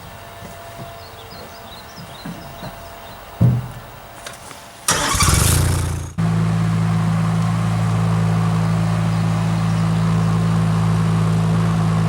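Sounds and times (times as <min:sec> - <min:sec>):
loud noisy burst: 0:04.9 - 0:06.2
diesel engine droning: 0:04.9 - 0:12.0.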